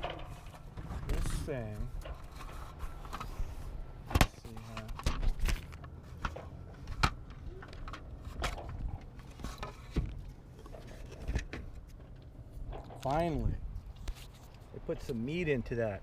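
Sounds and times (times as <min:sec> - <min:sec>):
parts knocking and clicking: 0:00.0 - 0:01.2
steady low hum: 0:00.0 - 0:16.0.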